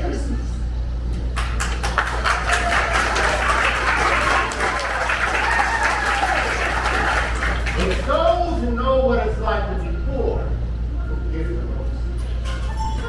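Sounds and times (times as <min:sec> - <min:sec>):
low hum: 0:00.0 - 0:13.0
audience applauding: 0:01.4 - 0:08.3.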